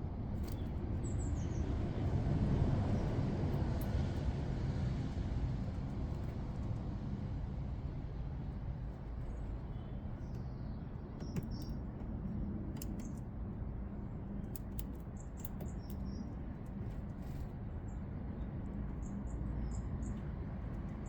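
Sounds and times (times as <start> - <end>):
distant traffic hum: 0.0 - 21.0
small birds chirping: 0.4 - 2.1, 9.1 - 13.3, 14.0 - 21.0.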